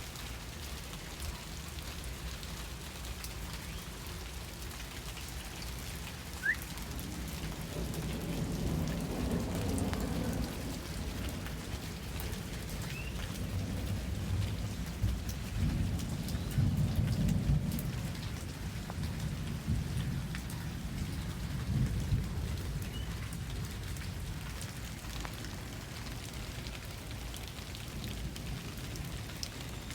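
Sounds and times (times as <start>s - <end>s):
steady rain: 0.0s - 29.9s
raindrop ticks: 0.1s - 29.9s
low rumble of thunder: 6.4s - 25.9s.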